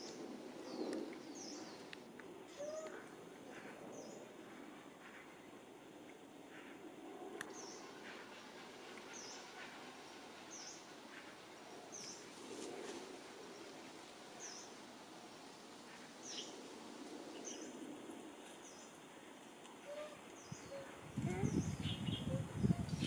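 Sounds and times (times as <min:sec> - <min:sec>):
faint outdoor ambience: 0:00.0 - 0:23.0.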